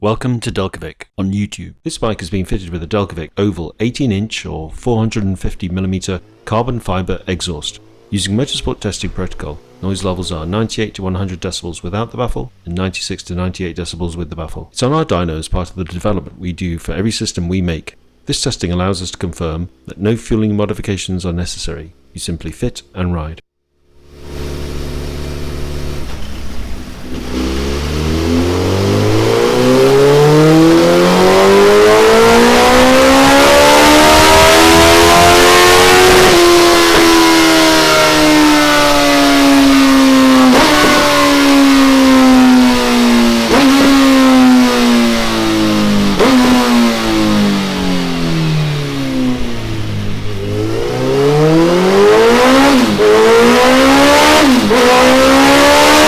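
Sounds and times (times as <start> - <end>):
motorcycle engine revving: 5.1 - 14.3, 23.8 - 56.0.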